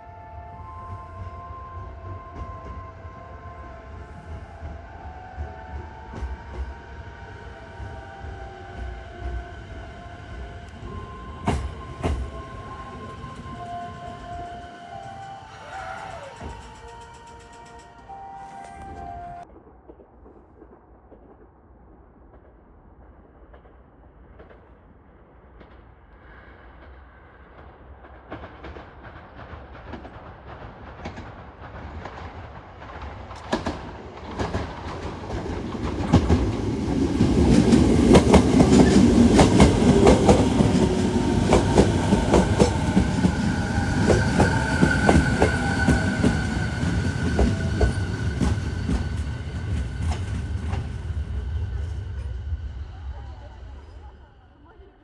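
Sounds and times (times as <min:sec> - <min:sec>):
electric train passing: 0:00.0 - 0:19.5, 0:25.9 - 0:55.0
wheels clacking over rail joints: 0:28.4 - 0:51.3.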